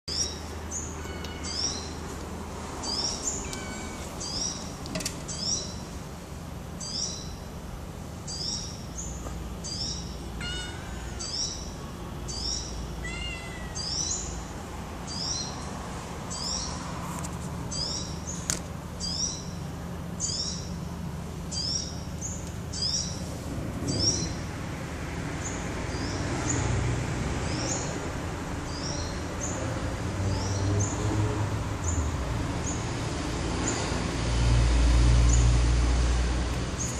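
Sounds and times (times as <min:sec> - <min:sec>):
bird chirping: 0:00.1 - 0:02.0, 0:02.8 - 0:05.8, 0:06.8 - 0:07.4, 0:08.3 - 0:14.4, 0:15.0 - 0:15.6, 0:17.7 - 0:19.6, 0:21.5 - 0:23.2
kitten mewing: 0:13.0 - 0:14.0.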